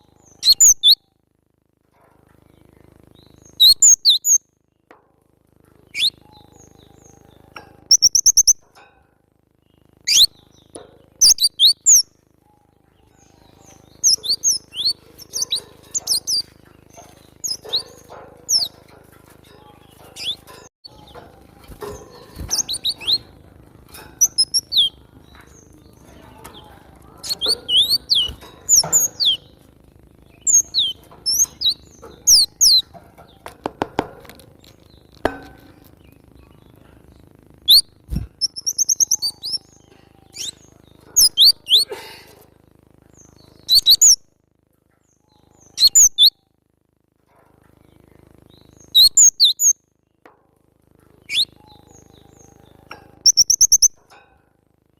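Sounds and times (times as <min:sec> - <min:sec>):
bird sharp high chirps: 0:00.0 - 0:01.0, 0:03.2 - 0:04.4, 0:05.9 - 0:08.6, 0:10.0 - 0:18.8, 0:19.8 - 0:23.3, 0:24.2 - 0:26.0, 0:30.3 - 0:32.8, 0:37.6 - 0:41.9, 0:43.2 - 0:44.2, 0:45.3 - 0:46.4, 0:48.5 - 0:49.8, 0:51.2 - 0:54.0
bird fast trill: 0:00.0 - 0:01.2, 0:02.5 - 0:04.6, 0:05.9 - 0:08.8, 0:09.6 - 0:33.4, 0:34.8 - 0:41.9, 0:43.1 - 0:44.2, 0:45.1 - 0:46.6, 0:48.4 - 0:49.9, 0:51.2 - 0:54.1.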